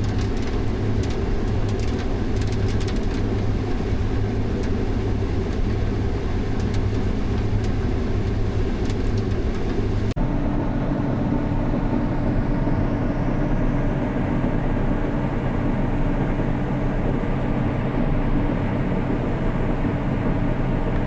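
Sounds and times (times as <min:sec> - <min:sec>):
diesel engine droning: 0:00.0 - 0:10.2
faint ticking: 0:00.0 - 0:10.2
different engine drone: 0:00.0 - 0:12.3.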